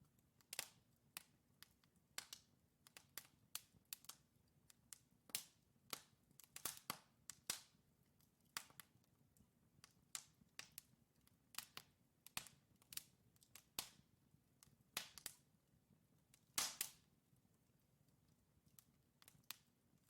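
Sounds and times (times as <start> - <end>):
wood logs crackling and popping: 16.3 - 17.0, 18.6 - 19.7.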